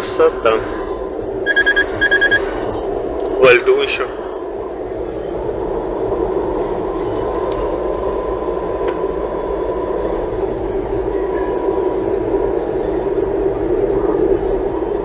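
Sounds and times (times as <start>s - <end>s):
faint steady whine: 0.0s - 15.0s.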